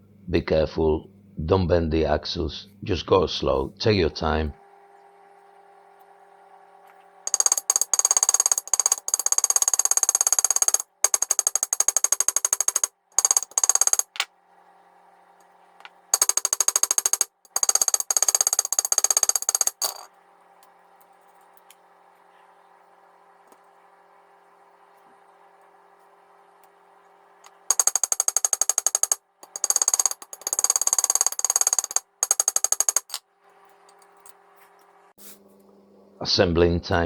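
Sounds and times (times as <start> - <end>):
power tool rapid knocking: 7.3 - 14.2, 16.2 - 20.1, 27.7 - 33.2.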